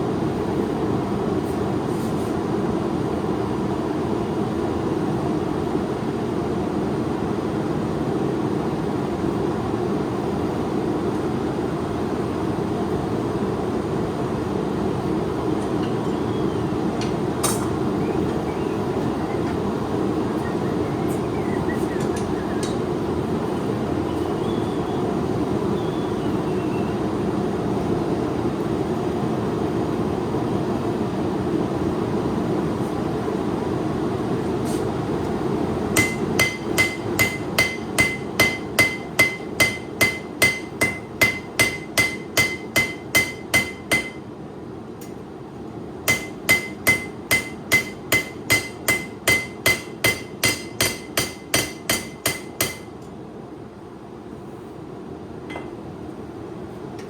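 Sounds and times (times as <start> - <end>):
hammer ringing on steel blade: 36.0 - 44.2, 46.1 - 52.9.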